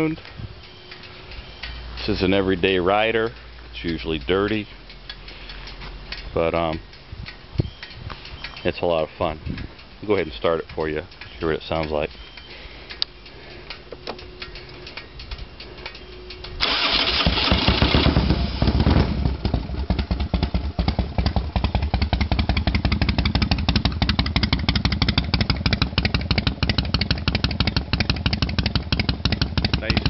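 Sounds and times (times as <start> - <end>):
motorcycle engine idling: 13.1 - 30.0
starter motor cranking: 16.6 - 18.6.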